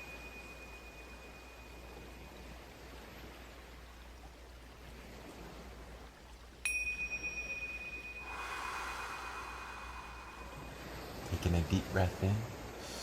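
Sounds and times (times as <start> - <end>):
struck metal chime ringing: 0.0 - 2.4, 6.6 - 11.7
quiet hiss: 0.0 - 13.0.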